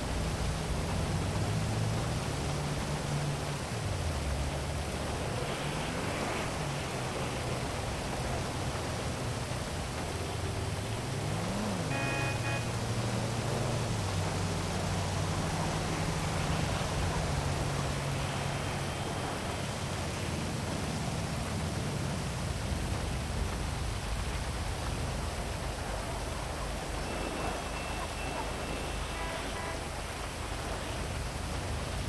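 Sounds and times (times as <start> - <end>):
passing vehicle hum: 0.0 - 23.2
heavy rain hissing: 0.0 - 32.0.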